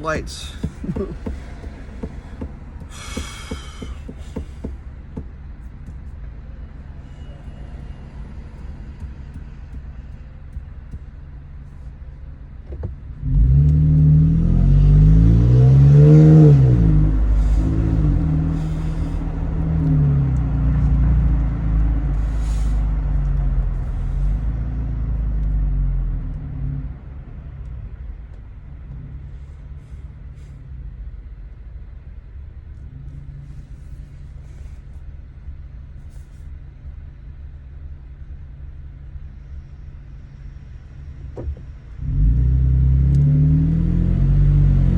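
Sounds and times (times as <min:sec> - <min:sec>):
truck engine and exhaust accelerating: 0:00.0 - 0:44.9.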